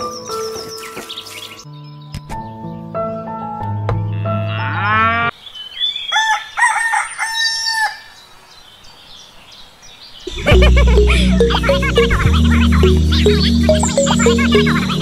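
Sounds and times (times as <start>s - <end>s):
rooster crowing: 6.1s - 8.1s
background music: 10.3s - 15.0s.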